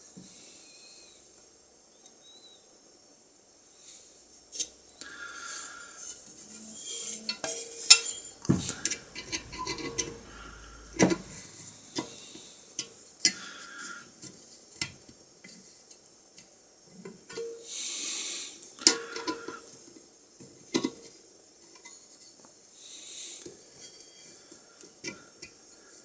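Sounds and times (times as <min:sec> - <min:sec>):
metal parts clinking and scraping: 0:06.0 - 0:12.2.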